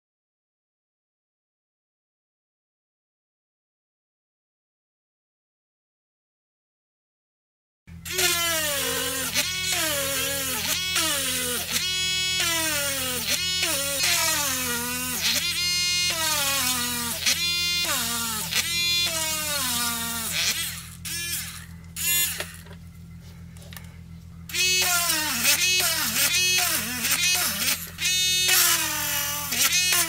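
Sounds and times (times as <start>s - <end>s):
steady low drone: 7.9s - 30.0s.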